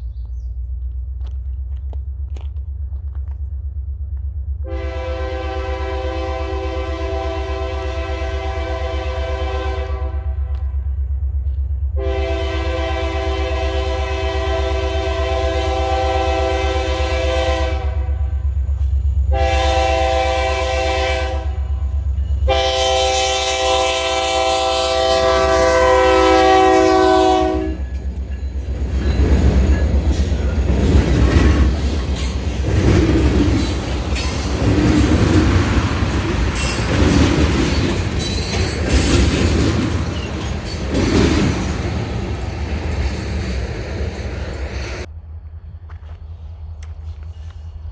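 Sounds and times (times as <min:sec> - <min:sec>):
deep engine rumble: 0:00.0 - 0:23.7, 0:24.3 - 0:47.9
locomotive air horn blasts: 0:04.6 - 0:10.8, 0:12.0 - 0:18.4, 0:19.3 - 0:28.1
train wheels clattering over joints: 0:25.6 - 0:45.1.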